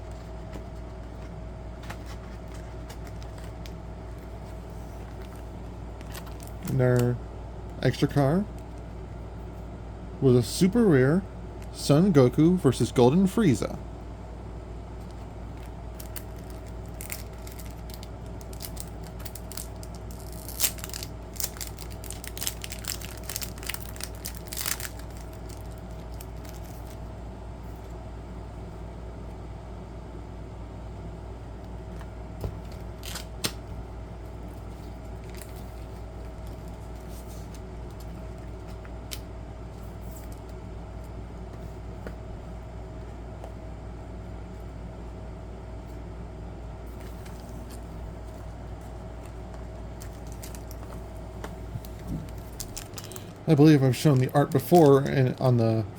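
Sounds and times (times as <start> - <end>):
steady low hum: 0.0 - 55.9
packaging crinkling and clicking: 5.1 - 6.8, 15.0 - 27.0, 32.7 - 33.6, 35.2 - 38.1, 49.2 - 55.5.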